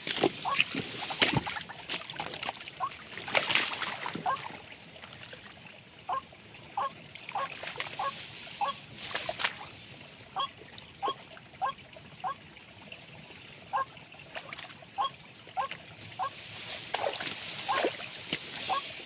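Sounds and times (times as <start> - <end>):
rustling and splashing: 0.0 - 5.6, 7.0 - 10.4, 12.8 - 19.0
nasal honking bird calls: 0.4 - 0.7, 6.1 - 8.8, 10.3 - 12.4, 15.0 - 16.4, 17.6 - 17.9, 18.6 - 19.0.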